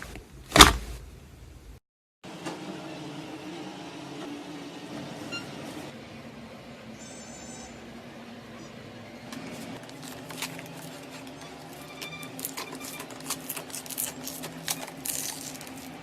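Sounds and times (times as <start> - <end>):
short high beep: 7.0 - 7.8.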